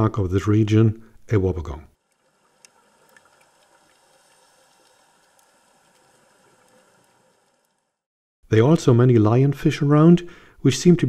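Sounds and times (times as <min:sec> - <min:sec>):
faint crackles and clicks: 0:02.0 - 0:08.1
soft hiss of water: 0:02.0 - 0:08.1.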